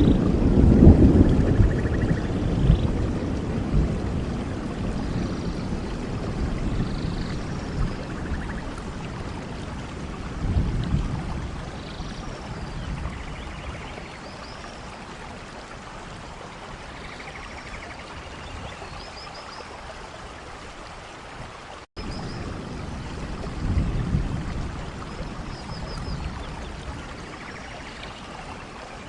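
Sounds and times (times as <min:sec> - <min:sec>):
birds chirping: 0:00.0 - 0:00.3
distant thunder rumbles: 0:00.0 - 0:19.0, 0:22.0 - 0:29.0
running water: 0:00.0 - 0:29.0
steady rain: 0:00.0 - 0:29.0.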